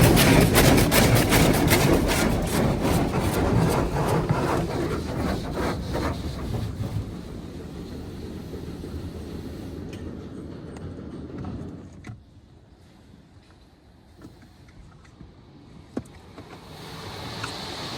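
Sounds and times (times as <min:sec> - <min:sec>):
car wash machine hissing: 0:16.6 - 0:17.9.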